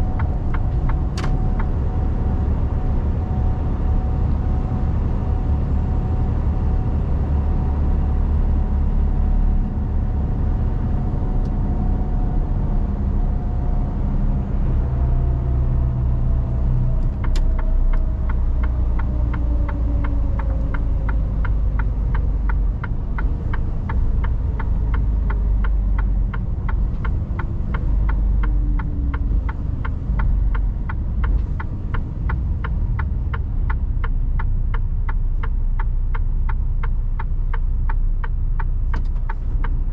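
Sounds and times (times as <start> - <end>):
turn signal ticking: 0.0 - 4.8, 15.2 - 39.9
engine whine: 0.0 - 34.2
truck engine rumble: 0.0 - 39.9
click: 17.0 - 32.4, 34.4 - 39.8.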